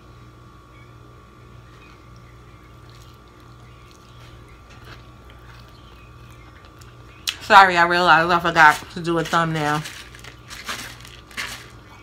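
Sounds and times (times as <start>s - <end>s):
steady low hum: 0.0s - 12.0s
faint chewing: 1.7s - 7.5s.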